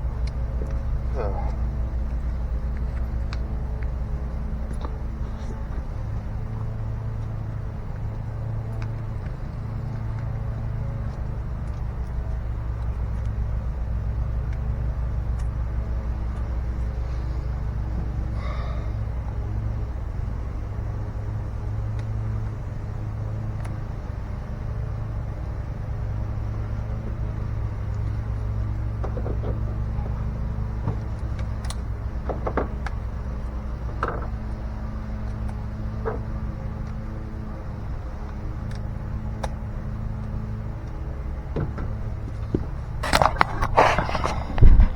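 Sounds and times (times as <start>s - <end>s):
low engine drone: 0.0s - 44.9s
light clicks and knocks: 27.8s - 37.4s.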